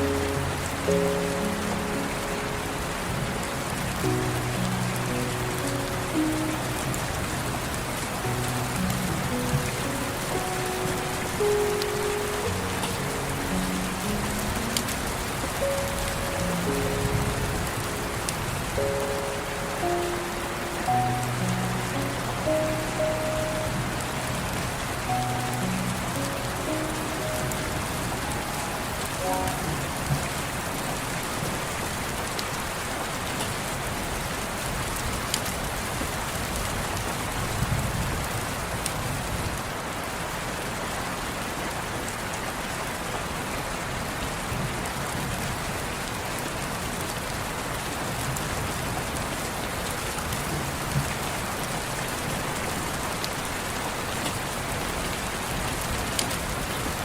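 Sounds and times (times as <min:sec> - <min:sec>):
soft piano notes: 0:00.0 - 0:33.9
steady rain falling: 0:00.0 - 0:57.0.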